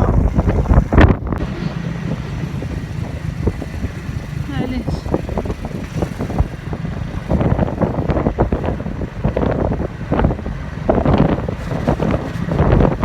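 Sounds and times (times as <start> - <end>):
low vehicle rumble: 0.0 - 13.0
wind buffeting microphone: 0.0 - 13.0.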